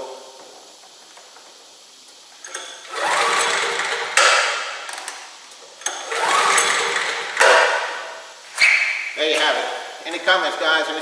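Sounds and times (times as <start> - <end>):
engine turning over with rattle: 2.4 - 5.2, 5.8 - 7.9
generator recoil starter pulled: 5.8 - 7.7.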